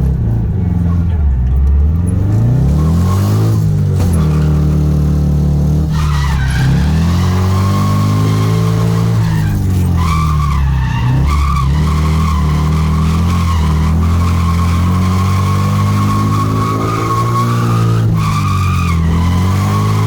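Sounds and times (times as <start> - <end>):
car engine revving: 0.0 - 20.0
tyres squealing: 5.8 - 20.0.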